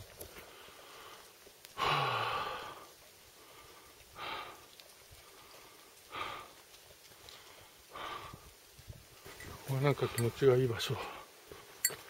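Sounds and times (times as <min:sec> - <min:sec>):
heavy breaths: 0:00.4 - 0:06.6, 0:07.2 - 0:08.6.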